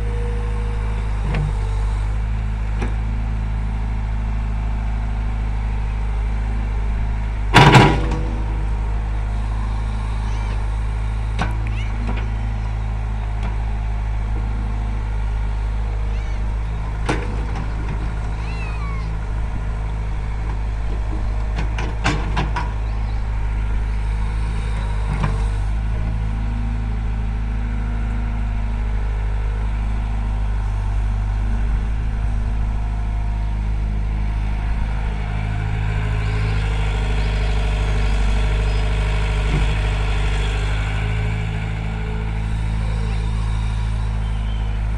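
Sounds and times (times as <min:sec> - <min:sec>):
heavy diesel engine running: 0:00.0 - 0:44.9
sharp metallic knocks: 0:07.6 - 0:08.8.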